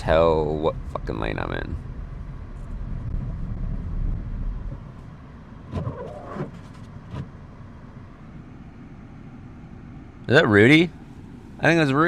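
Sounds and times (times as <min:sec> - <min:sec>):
engine and tyre rumble: 0:00.0 - 0:12.0.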